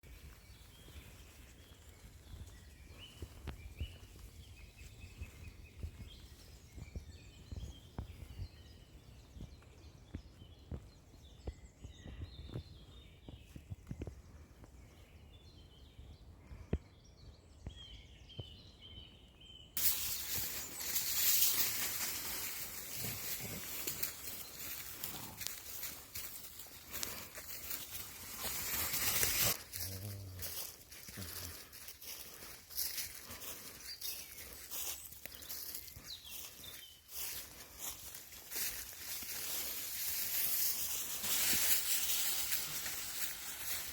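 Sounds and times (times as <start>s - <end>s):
birds singing: 0.0s - 43.9s
loud rustling and crackling: 19.8s - 29.7s
footsteps: 19.8s - 43.9s.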